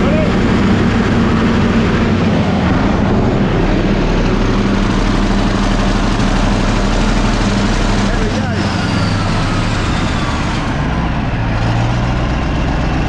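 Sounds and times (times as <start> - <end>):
large diesel engine running: 0.0 - 13.0.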